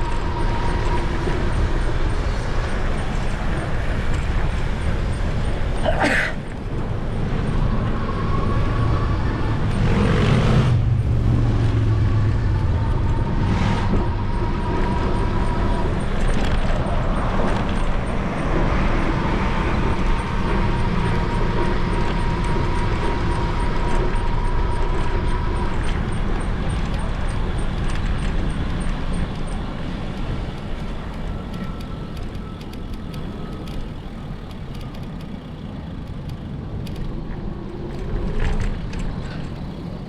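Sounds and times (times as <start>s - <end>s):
passing cars: 0.0s - 40.0s
vehicle passing loudly: 6.8s - 25.1s.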